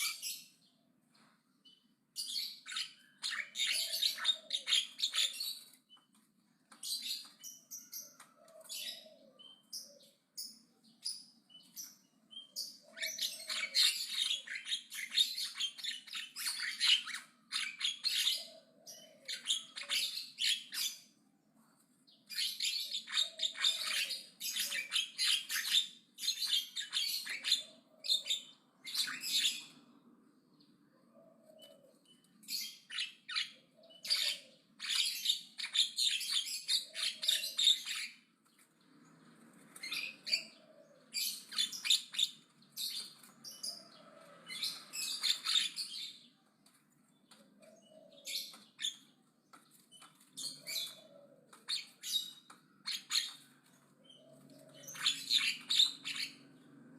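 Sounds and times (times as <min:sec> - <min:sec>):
myna bird chattering song: 0:49.9 - 0:56.6.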